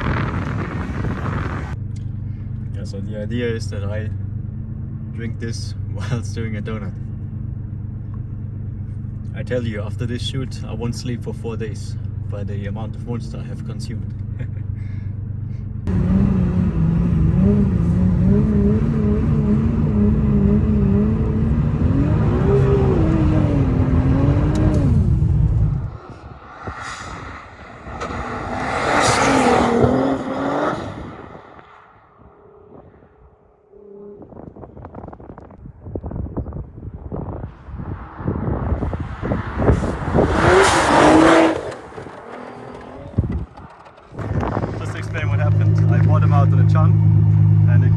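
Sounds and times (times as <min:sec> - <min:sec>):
car engine at high revs: 0:00.0 - 0:10.8, 0:15.4 - 0:33.2, 0:37.0 - 0:47.9
loud rushing noise: 0:21.8 - 0:32.9.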